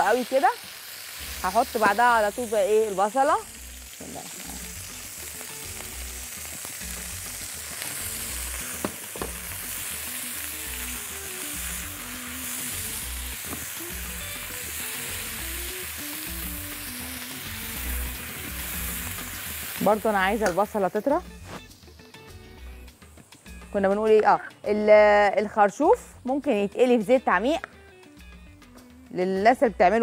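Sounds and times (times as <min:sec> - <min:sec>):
chicken sizzling in oil: 0:00.0 - 0:22.4.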